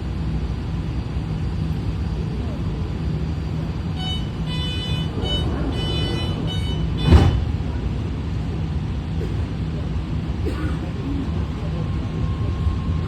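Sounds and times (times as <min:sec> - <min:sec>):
train car rumble: 0:00.0 - 0:13.0
sharp thump: 0:07.0 - 0:07.7.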